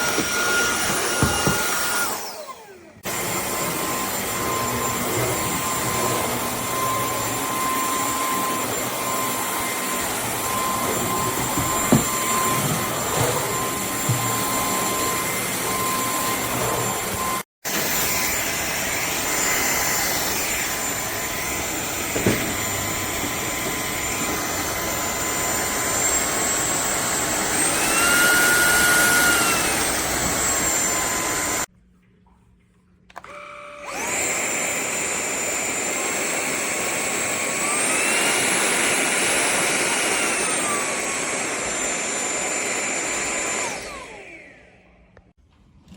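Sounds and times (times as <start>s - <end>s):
vacuum motor whine: 0.0s - 31.7s, 33.2s - 45.3s.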